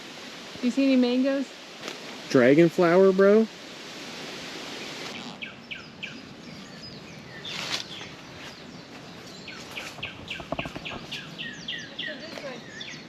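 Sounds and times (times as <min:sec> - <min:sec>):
outdoor background noise: 0:00.0 - 0:13.0
birds chirping: 0:04.7 - 0:13.0
rustling swish: 0:07.5 - 0:08.0.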